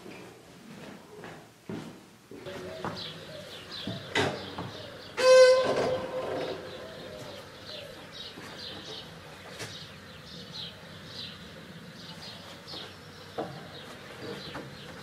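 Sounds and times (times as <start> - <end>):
small birds chirping: 2.4 - 5.2, 6.4 - 15.0.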